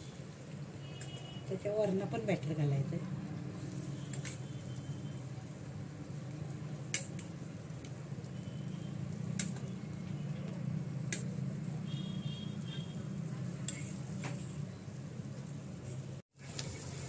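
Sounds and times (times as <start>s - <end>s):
bread sizzling in butter: 16.3s - 17.0s.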